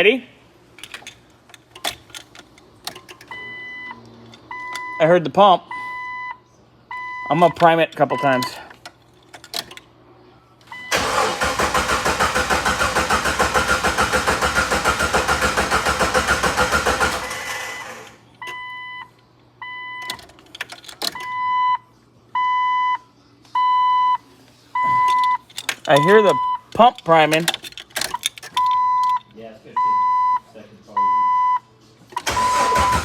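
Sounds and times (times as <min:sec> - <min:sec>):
car engine cranking: 0:00.7 - 0:04.9, 0:08.3 - 0:09.8, 0:10.8 - 0:18.6, 0:20.0 - 0:21.3, 0:25.0 - 0:29.2, 0:32.1 - 0:33.0
dashboard warning chime beeping: 0:03.2 - 0:08.6, 0:18.4 - 0:20.3, 0:21.0 - 0:21.8, 0:24.8 - 0:27.4, 0:28.0 - 0:29.2, 0:29.8 - 0:31.6, 0:32.2 - 0:33.0.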